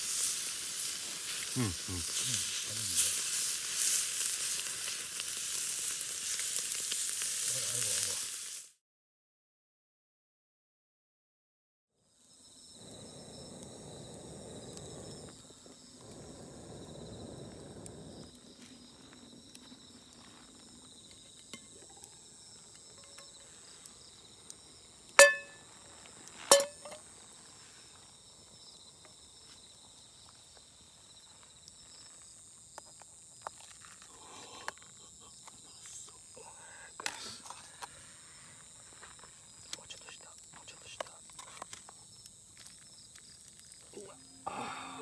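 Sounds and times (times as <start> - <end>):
insects trilling: 0.0 - 8.7, 12.1 - 45.0
ringing metal clinks: 25.2 - 25.6, 26.5 - 27.0.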